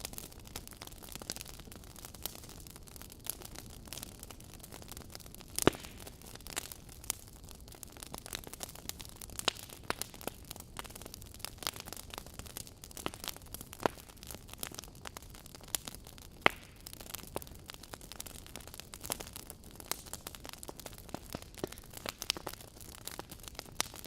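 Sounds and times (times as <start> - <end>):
fire crackling and popping: 0.0 - 24.0.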